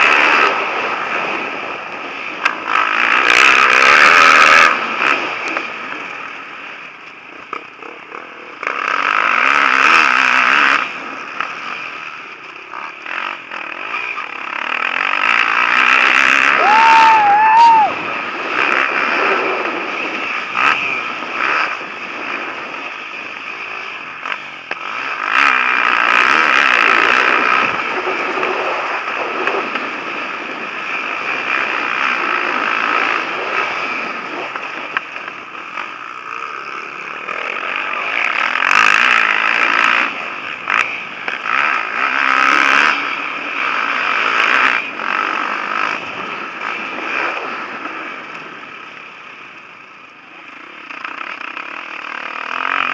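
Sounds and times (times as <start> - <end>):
motocross motorcycles revving: 0.0 - 52.9.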